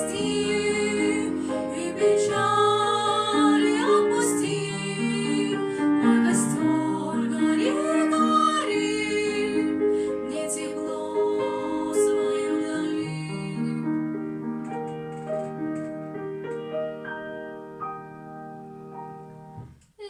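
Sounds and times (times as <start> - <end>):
girls singing: 0.0 - 13.9
grand piano accompaniment: 0.0 - 20.0.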